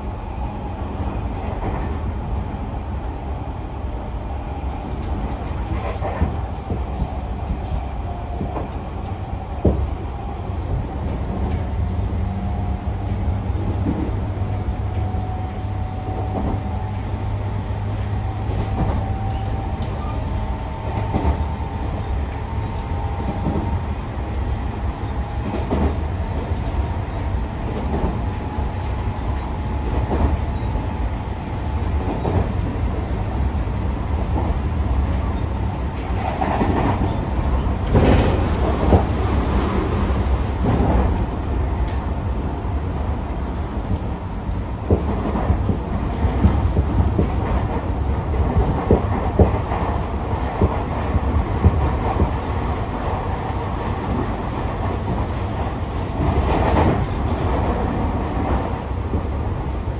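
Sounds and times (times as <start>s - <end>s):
train low rumble: 0.0s - 59.9s
rail-joint clacks: 4.7s - 9.9s, 13.6s - 17.2s, 18.4s - 23.8s, 25.2s - 30.9s, 31.9s - 32.7s, 34.2s - 42.1s, 44.8s - 53.0s.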